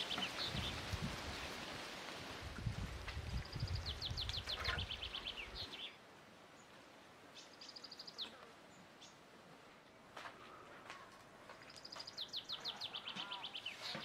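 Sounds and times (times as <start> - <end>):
songbird singing: 0.0 - 1.6, 3.2 - 9.3, 11.6 - 14.0.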